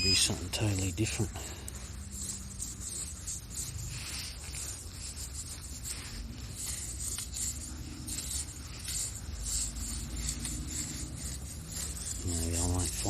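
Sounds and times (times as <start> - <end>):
low steady rumble: 0.0 - 13.0
sand scraping: 0.0 - 13.0.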